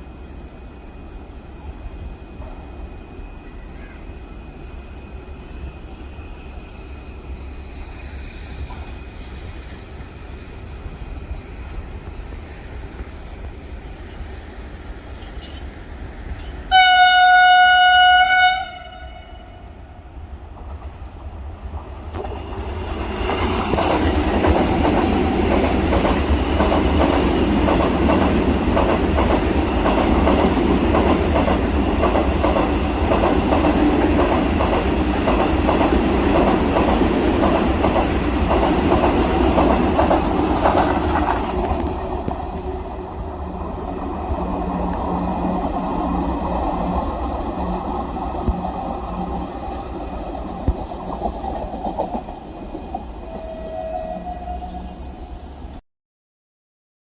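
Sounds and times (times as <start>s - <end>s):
train passing at speed: 0.0s - 55.8s
train horn blast: 15.2s - 15.8s, 16.4s - 20.0s, 53.2s - 55.0s.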